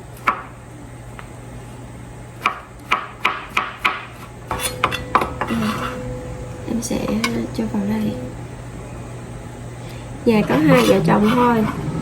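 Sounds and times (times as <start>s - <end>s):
knife chopping on cutting board: 0.2s - 0.5s, 2.4s - 6.0s.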